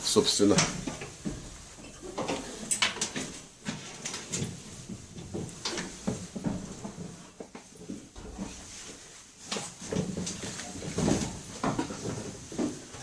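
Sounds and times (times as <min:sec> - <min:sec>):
clothes rustling: 0:00.1 - 0:13.0.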